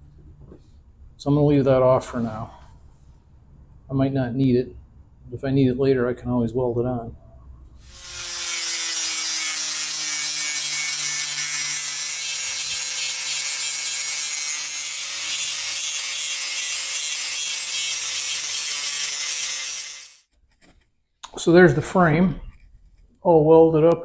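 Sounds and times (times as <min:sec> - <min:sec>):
angle grinder grinding metal: 0:07.8 - 0:20.2.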